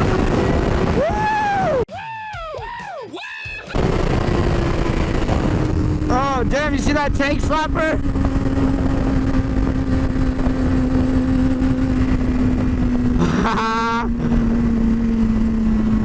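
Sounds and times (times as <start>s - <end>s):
wind rushing over microphone: 0.0s - 1.8s, 3.7s - 16.0s
motorcycle engine cruising: 3.6s - 16.0s.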